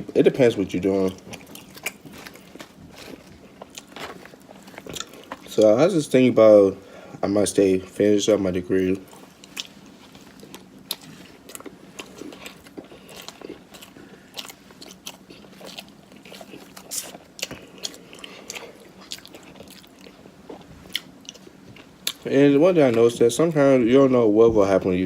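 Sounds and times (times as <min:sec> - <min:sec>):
person chewing food: 0:00.5 - 0:05.7, 0:08.9 - 0:23.0.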